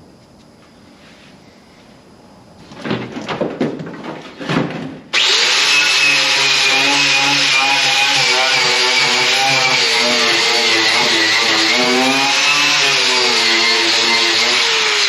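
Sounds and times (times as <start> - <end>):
scraping and knocking: 2.6 - 5.1
power tool running: 5.1 - 15.0.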